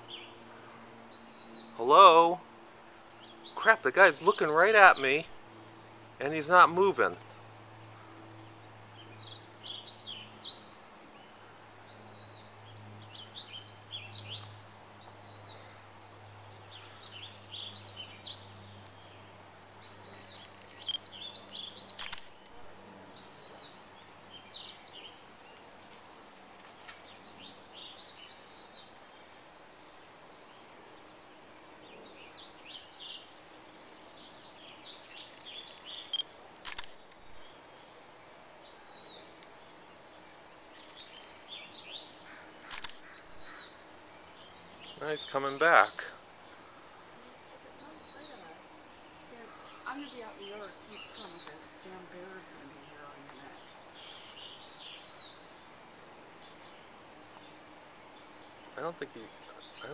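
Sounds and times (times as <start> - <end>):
songbirds chirping and singing: 7.8 - 22.2, 26.6 - 36.2, 37.4 - 59.9
sharp click: 21.9 - 22.6, 36.1 - 37.3, 42.6 - 43.2.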